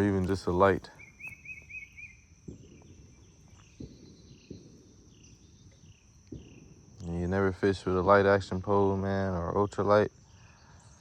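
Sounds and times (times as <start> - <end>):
bird chirping: 0.0 - 7.3
high insect drone: 0.0 - 11.0.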